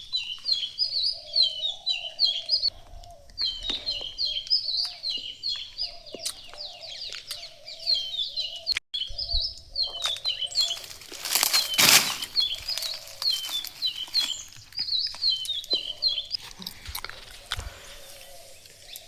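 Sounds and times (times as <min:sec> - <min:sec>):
small birds chirping: 0:00.0 - 0:19.0
loud rustle: 0:10.6 - 0:14.7.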